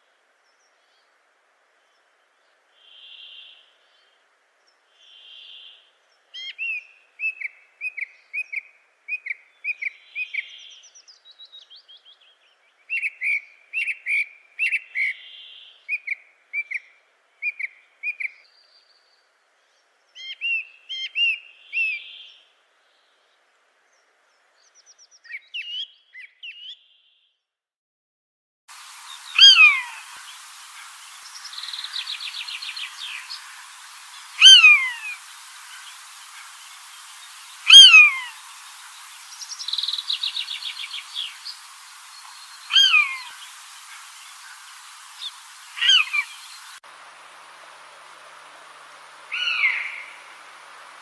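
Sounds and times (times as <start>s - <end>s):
faint background hiss: 0.0s - 27.4s, 28.7s - 51.0s
small birds singing: 0.4s - 27.4s, 28.7s - 46.8s, 48.5s - 51.0s
buzzy bird calls: 28.8s - 46.8s, 49.1s - 51.0s.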